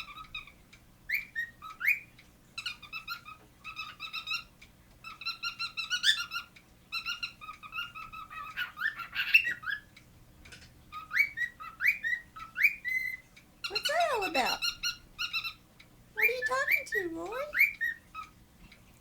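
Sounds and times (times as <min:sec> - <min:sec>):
cockatiel whistling and chirping: 0:01.1 - 0:09.9, 0:10.9 - 0:15.6, 0:17.5 - 0:18.3.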